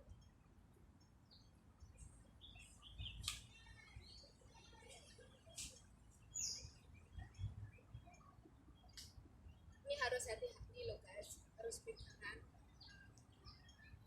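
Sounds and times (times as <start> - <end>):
bird chirps and calls: 2.4 - 5.6, 6.2 - 8.2.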